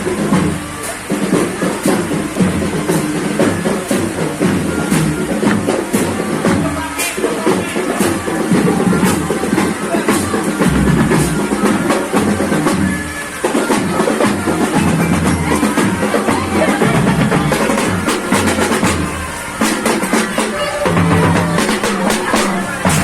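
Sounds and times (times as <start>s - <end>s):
marching band playing: 0.0s - 23.0s
snare drum strokes: 0.0s - 23.0s
bass drums thudding: 10.6s - 13.0s, 16.8s - 23.0s.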